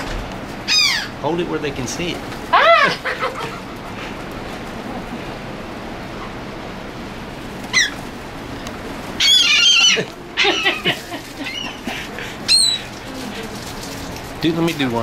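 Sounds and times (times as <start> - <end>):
steady background hiss: 0.0 - 15.0
seagulls calling: 0.6 - 1.2, 2.5 - 4.3, 7.6 - 8.1, 9.1 - 13.0.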